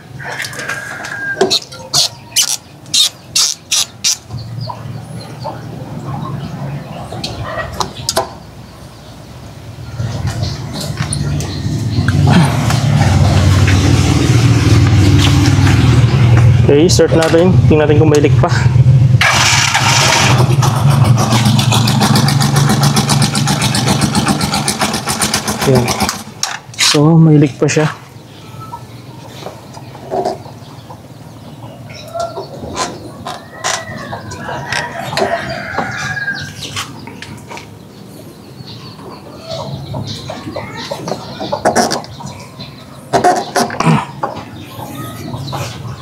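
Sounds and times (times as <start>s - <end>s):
chickens clucking: 0.0s - 8.5s, 27.7s - 46.0s
rooster crowing: 0.2s - 1.7s, 33.3s - 36.6s
tricycle engine idling: 9.8s - 26.6s.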